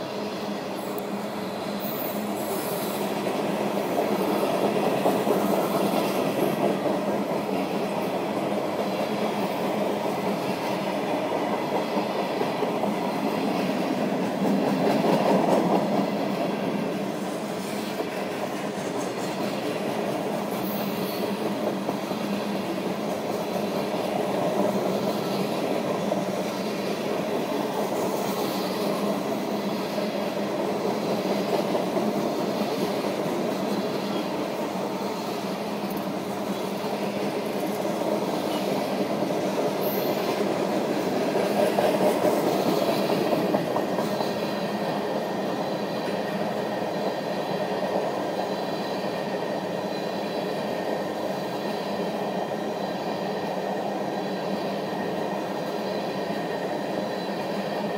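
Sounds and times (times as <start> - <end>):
train wheels clattering over rail joints: 1.9 - 48.1.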